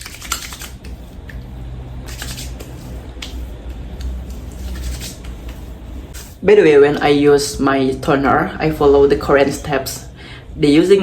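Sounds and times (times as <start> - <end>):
hands patting wet skin: 0.0 - 5.7
low steady hum: 0.0 - 11.0.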